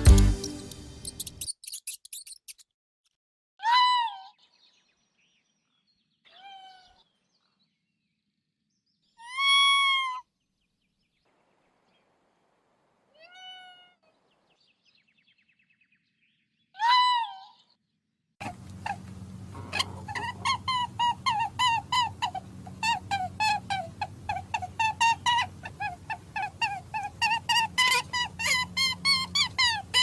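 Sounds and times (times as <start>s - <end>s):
cat meowing: 13.2s - 14.0s.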